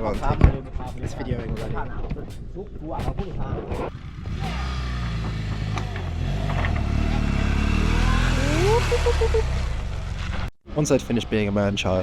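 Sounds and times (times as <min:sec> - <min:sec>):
motorcycle engine revving: 0:03.8 - 0:10.5
short rising tone: 0:06.7 - 0:10.1.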